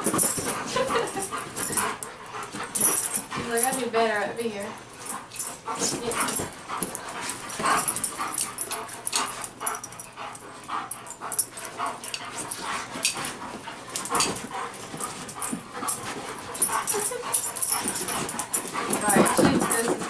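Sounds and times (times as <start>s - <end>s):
dogs vocalizing: 4.8s - 20.0s.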